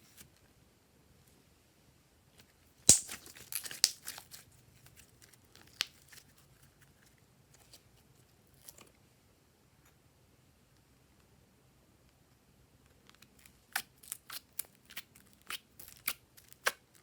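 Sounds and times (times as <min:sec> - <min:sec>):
sharp snap: 0:02.9 - 0:04.0.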